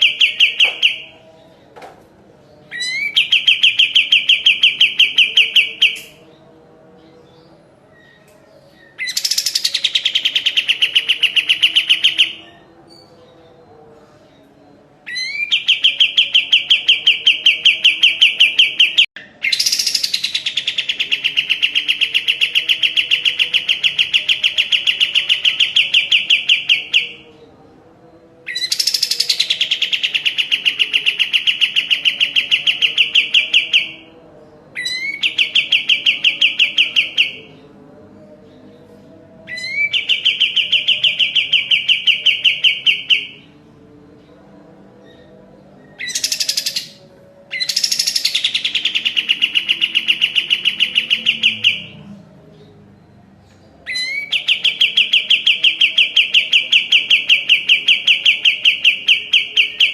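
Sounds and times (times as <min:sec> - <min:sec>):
songbird singing rapid trills: 0:45.9 - 0:52.0.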